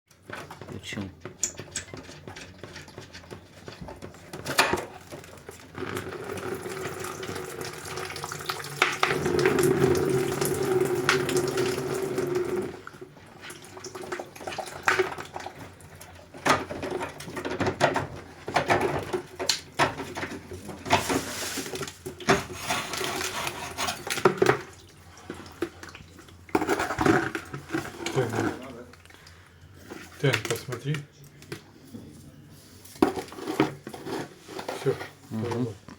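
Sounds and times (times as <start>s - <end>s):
water running and splashing: 6.4s - 16.0s.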